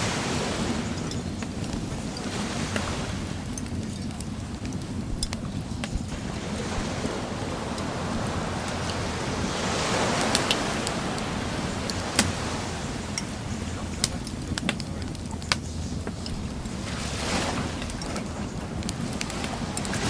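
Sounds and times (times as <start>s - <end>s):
sea waves washing ashore: 0.0s - 20.0s
wood fire crackling: 0.0s - 20.0s.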